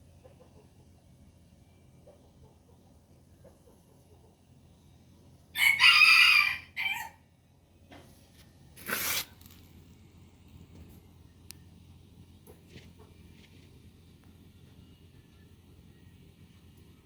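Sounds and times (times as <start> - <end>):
rooster crowing: 5.5 - 7.2
brief noisy rasp: 8.8 - 9.4.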